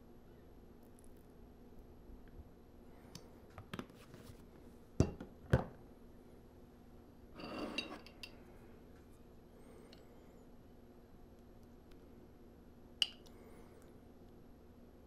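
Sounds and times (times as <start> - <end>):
kitchenware scraping clatter: 7.4 - 8.2.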